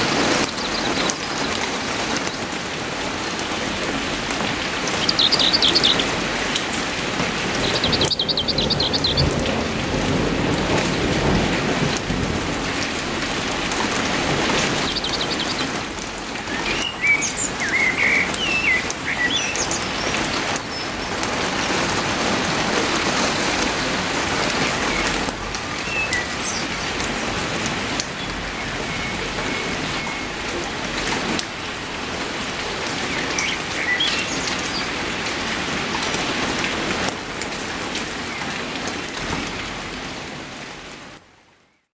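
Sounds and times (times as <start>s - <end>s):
heavy rain falling: 0.0s - 41.8s
bird chirps: 5.0s - 6.1s, 7.6s - 9.2s, 14.8s - 15.7s, 16.5s - 20.9s, 25.8s - 27.1s, 33.0s - 34.9s.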